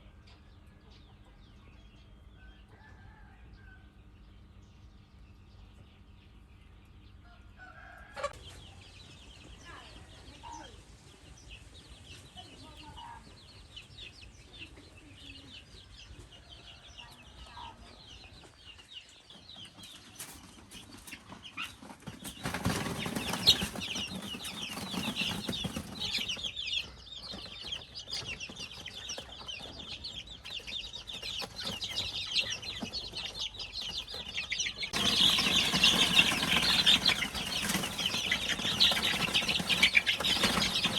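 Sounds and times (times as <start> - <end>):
chickens peeping: 0.0 - 40.9
chickens clucking: 7.1 - 40.9
wings flapping: 20.0 - 26.6, 31.0 - 40.9.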